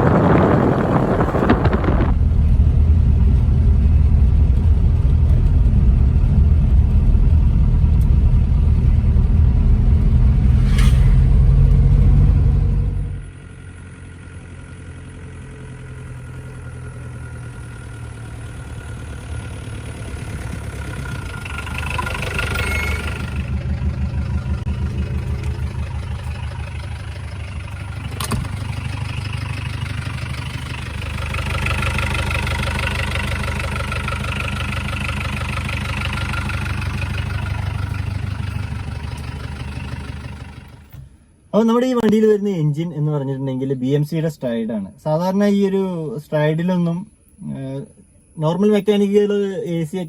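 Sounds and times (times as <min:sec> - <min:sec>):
diesel engine running: 0:00.0 - 0:41.7.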